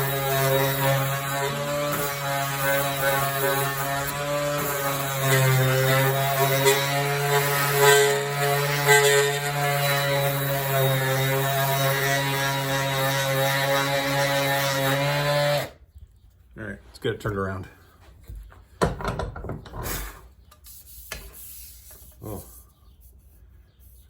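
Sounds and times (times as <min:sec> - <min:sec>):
electric sander whine: 0:00.0 - 0:15.7.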